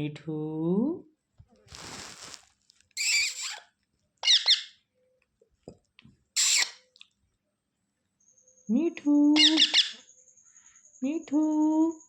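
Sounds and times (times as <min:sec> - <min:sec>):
parrot squawking: 0:03.0 - 0:03.6, 0:04.2 - 0:04.8, 0:06.4 - 0:06.8, 0:09.4 - 0:10.0.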